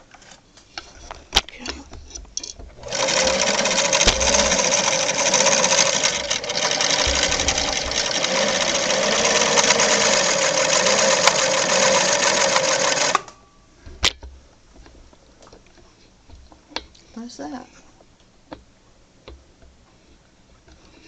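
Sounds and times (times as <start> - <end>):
sewing machine running: 2.8 - 13.3.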